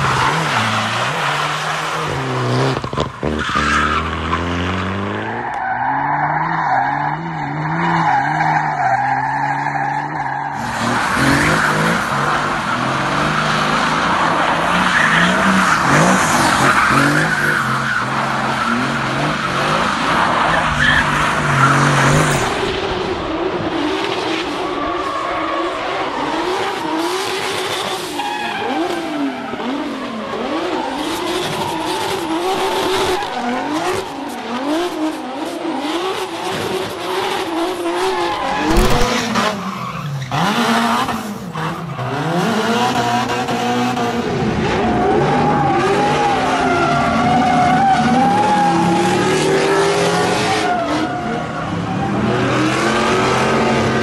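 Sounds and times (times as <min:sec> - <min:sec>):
car engines revving high: 0:00.0 - 0:54.0.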